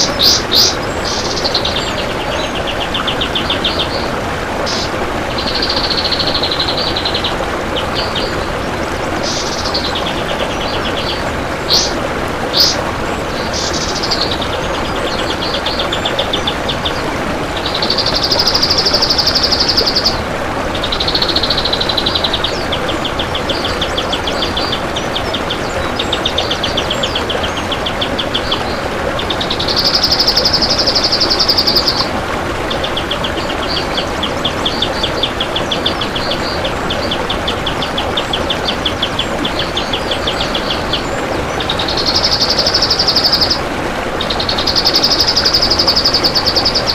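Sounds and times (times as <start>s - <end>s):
bird singing rattling trills: 0.0s - 8.4s, 9.2s - 17.0s, 17.6s - 20.2s, 29.4s - 32.1s, 32.8s - 43.6s, 44.2s - 46.9s.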